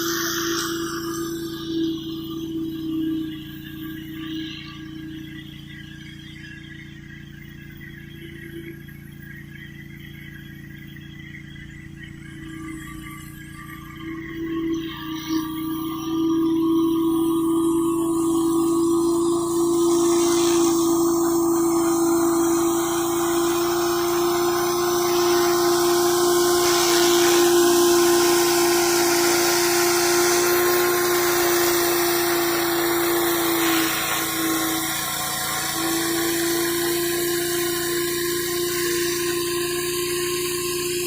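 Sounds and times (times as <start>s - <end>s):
pressure washer engine running: 19.4s - 41.0s
water jet hissing on concrete: 19.9s - 40.9s.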